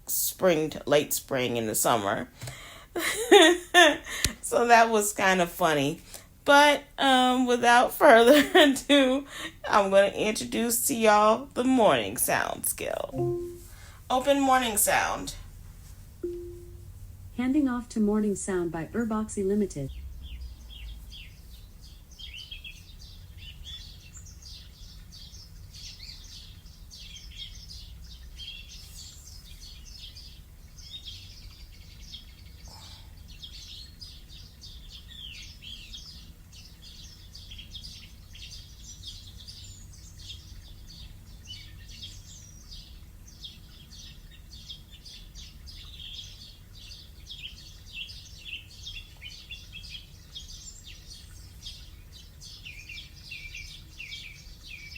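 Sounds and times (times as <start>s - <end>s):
songbirds chirping: 0.0s - 15.5s, 16.1s - 54.9s
low steady hum: 12.9s - 21.6s.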